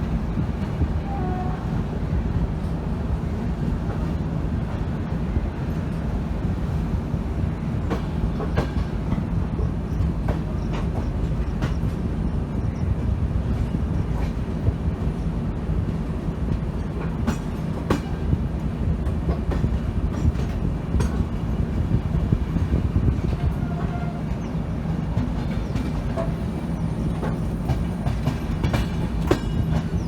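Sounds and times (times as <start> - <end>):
train wheels rumbling on track: 0.0 - 30.0
wheels clicking over rail joints: 22.7 - 30.0.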